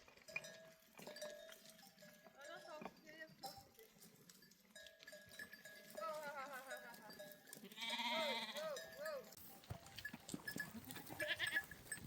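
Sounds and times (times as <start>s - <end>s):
sheep or goats bleating: 6.0s - 9.2s, 10.6s - 11.8s.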